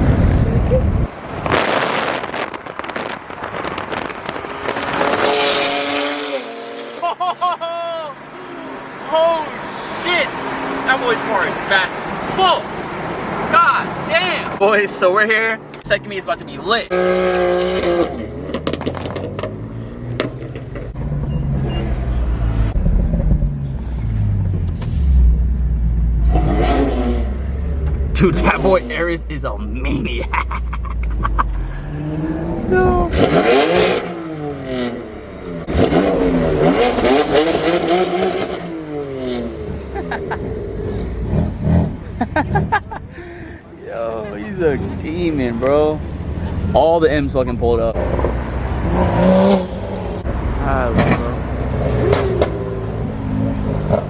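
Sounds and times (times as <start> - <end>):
exhaust pops and crackles: 1.4 - 5.6, 18.5 - 21.0
car engine revving: 1.4 - 7.1, 15.3 - 54.0.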